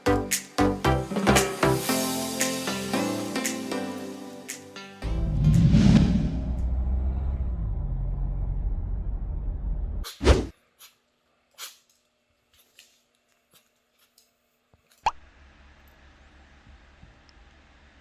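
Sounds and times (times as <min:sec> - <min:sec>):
steady low rumble: 0:05.0 - 0:10.0.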